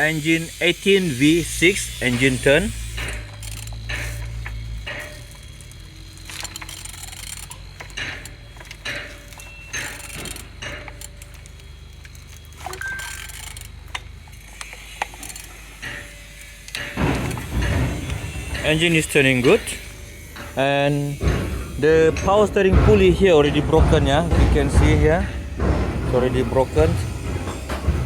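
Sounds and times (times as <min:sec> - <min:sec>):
wrench ratchet clicks: 0:00.0 - 0:08.9, 0:12.8 - 0:16.9
metallic rattles: 0:00.0 - 0:28.0.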